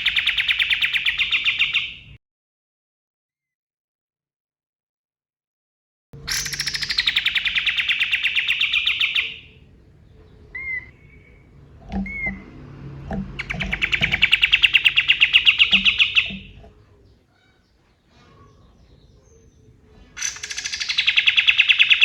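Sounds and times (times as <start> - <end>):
songbird trilling: 0.0 - 2.0, 6.2 - 22.0
low knocks: 11.0 - 14.4.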